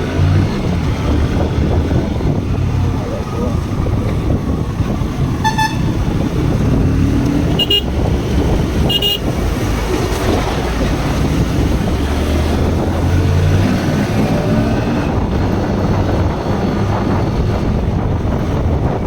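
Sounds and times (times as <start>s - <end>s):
motorcycle engine: 0.0s - 19.0s
traffic noise: 0.0s - 19.0s
wind buffeting microphone: 0.0s - 19.0s
horn toot: 5.4s - 6.2s, 7.5s - 8.1s, 8.8s - 9.3s.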